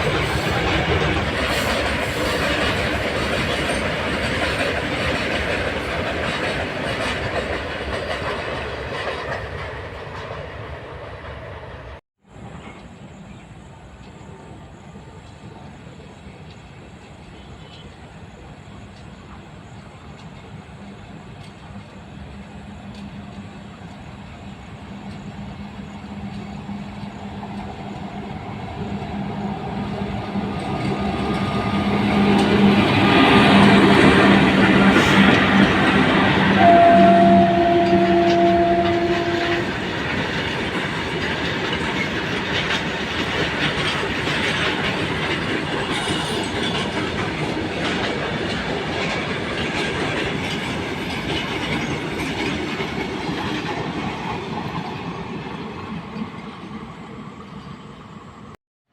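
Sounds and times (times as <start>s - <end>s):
train wheels clattering: 0.0s - 12.0s, 22.8s - 56.9s
quieter train sound: 0.0s - 58.9s.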